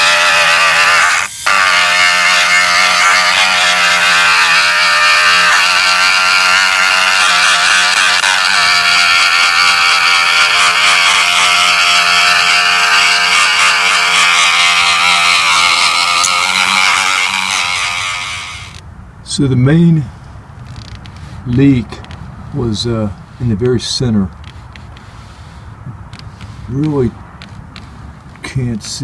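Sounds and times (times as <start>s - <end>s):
rotary tool grinding plastic: 0.0s - 18.8s.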